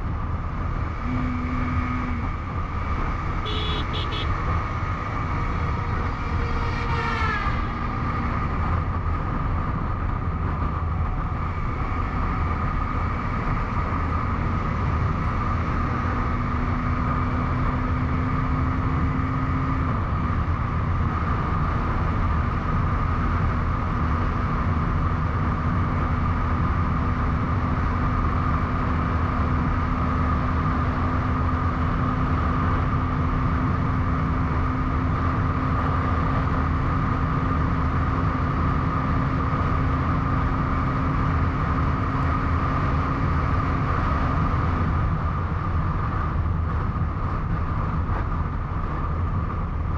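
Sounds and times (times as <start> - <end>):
motorcycle engine cruising: 0.0 - 49.9
wind rush on microphone: 4.3 - 49.9.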